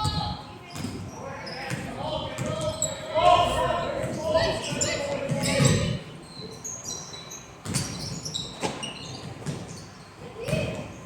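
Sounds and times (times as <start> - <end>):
shoes squeaking on gym floor: 4.6 - 10.6.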